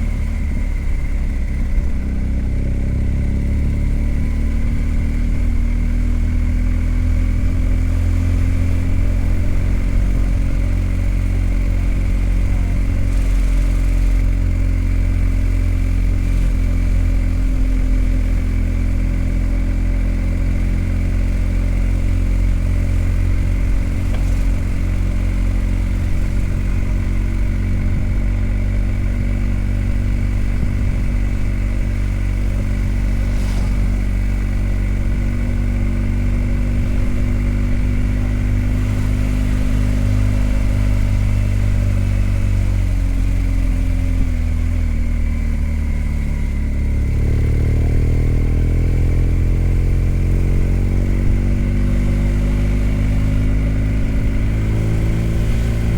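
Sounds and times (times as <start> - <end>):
motorcycle engine under way: 0.0 - 55.9.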